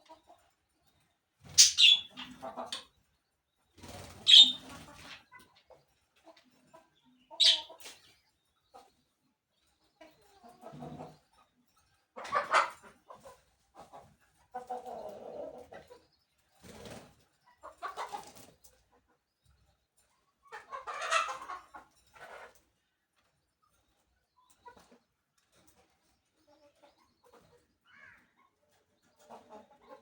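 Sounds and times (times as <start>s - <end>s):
birds calling in scratchy bursts: 1.4s - 2.4s, 3.8s - 5.1s, 7.4s - 8.0s.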